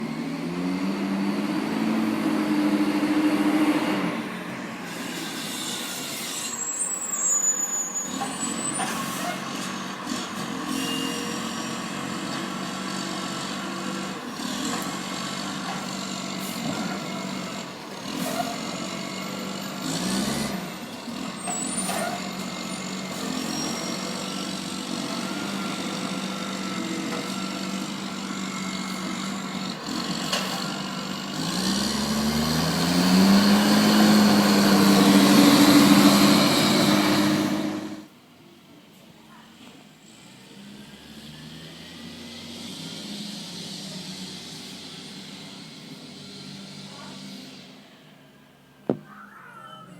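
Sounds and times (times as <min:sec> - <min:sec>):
truck engine running: 0:11.4 - 0:38.0.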